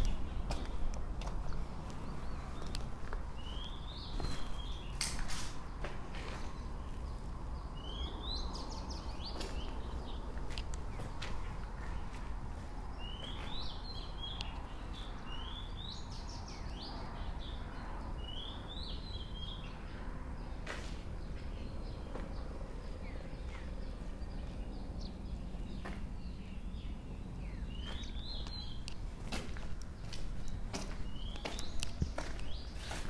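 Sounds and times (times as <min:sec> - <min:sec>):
steady low rumble: 0:00.0 - 0:04.1.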